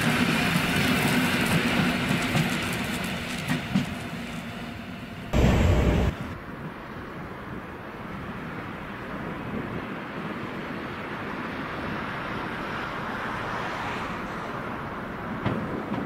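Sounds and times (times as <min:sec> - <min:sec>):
train wheels rumbling on rails: 0:00.0 - 0:13.4, 0:14.1 - 0:16.0.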